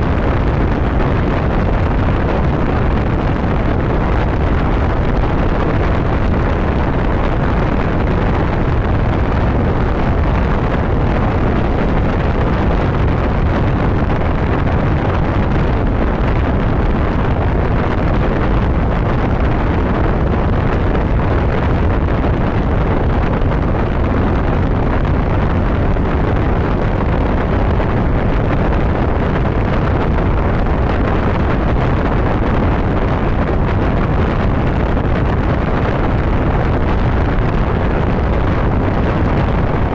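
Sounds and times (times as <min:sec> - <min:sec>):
road noise: 0:00.0 - 0:39.9
wind rush on microphone: 0:00.0 - 0:39.9.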